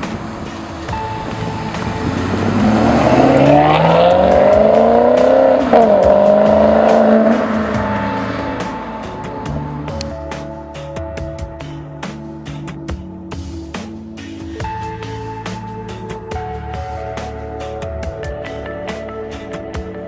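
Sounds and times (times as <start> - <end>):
car engine accelerating hard: 0.0 - 10.9
background music: 0.0 - 20.0.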